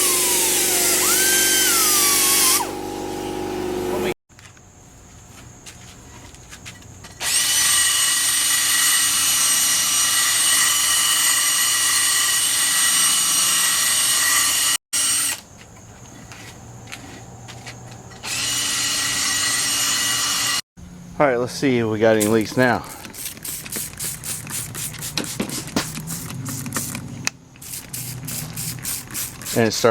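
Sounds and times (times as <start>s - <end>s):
power tool motor whining: 0.0s - 4.1s, 7.2s - 15.4s, 18.1s - 20.6s.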